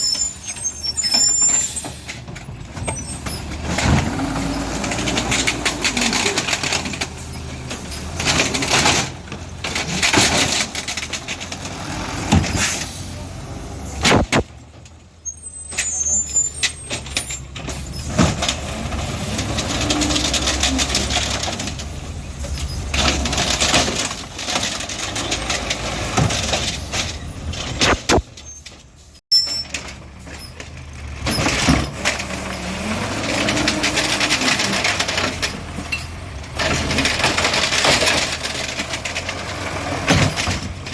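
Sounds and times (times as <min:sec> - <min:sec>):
diesel engine running: 0:01.6 - 0:14.8.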